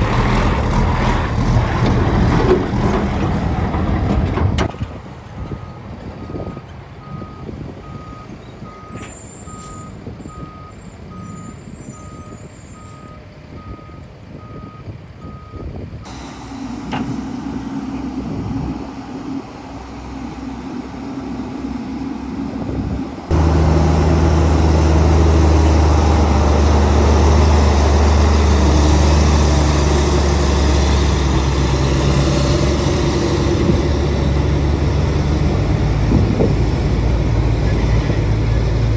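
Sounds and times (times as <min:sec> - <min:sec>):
diesel engine running: 0:00.0 - 0:05.7, 0:10.1 - 0:38.9
loud diesel engine: 0:00.0 - 0:38.9
reversing alarm beeping: 0:05.5 - 0:19.4.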